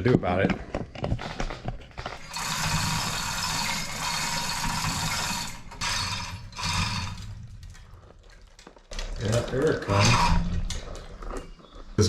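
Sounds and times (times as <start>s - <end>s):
chain hoist rattling and whirring: 1.9s - 11.2s.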